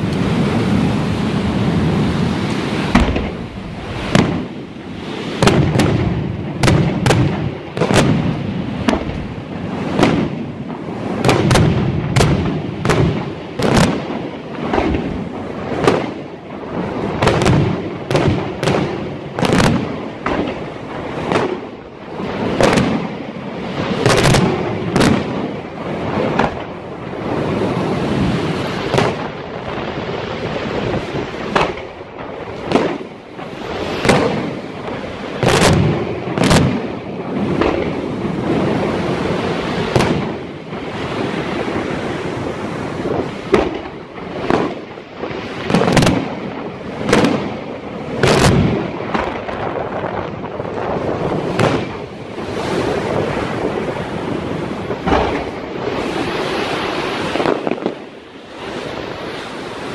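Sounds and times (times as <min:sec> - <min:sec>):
firework shells bursting: 0:02.4 - 0:16.4, 0:27.7 - 0:42.2, 0:43.0 - 0:58.2.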